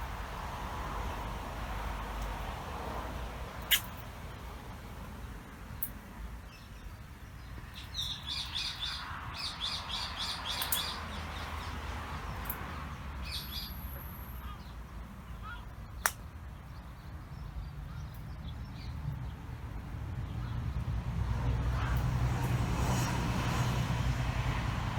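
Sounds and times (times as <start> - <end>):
small bird chirping: 3.6 - 4.0, 5.8 - 11.8, 13.2 - 14.8
sharp click: 3.7 - 3.9.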